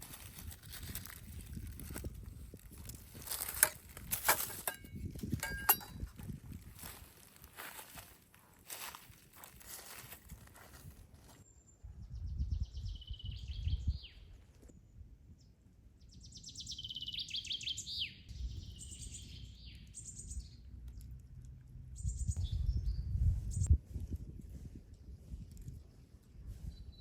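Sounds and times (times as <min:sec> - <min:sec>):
songbird singing: 0:11.3 - 0:23.8, 0:25.0 - 0:27.0.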